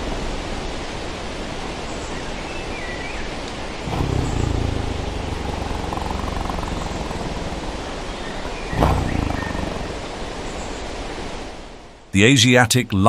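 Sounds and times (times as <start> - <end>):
background hiss: 0.0 - 13.0
big cat growling: 3.8 - 10.2.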